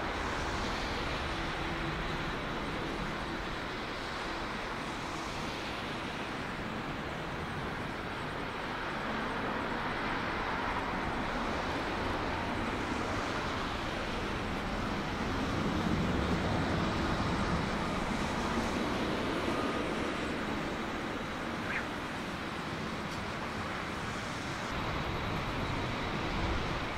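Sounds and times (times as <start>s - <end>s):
jet engine rush: 0.0s - 26.9s.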